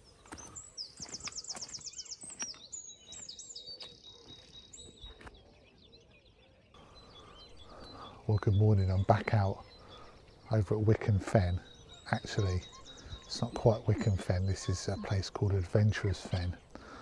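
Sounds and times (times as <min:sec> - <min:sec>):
small birds singing: 0:00.0 - 0:17.0
fast bird trill: 0:07.0 - 0:16.4.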